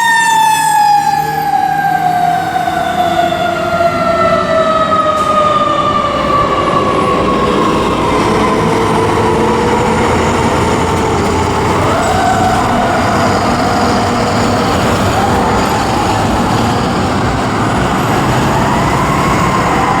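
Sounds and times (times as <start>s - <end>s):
fire engine siren: 0.0s - 20.0s
truck and road noise: 0.0s - 20.0s.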